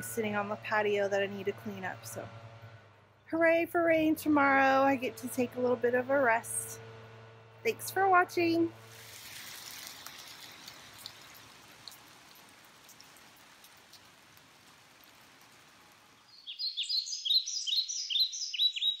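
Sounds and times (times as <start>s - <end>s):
faint outdoor hiss: 0.0s - 19.0s
bird chirping: 16.2s - 19.0s.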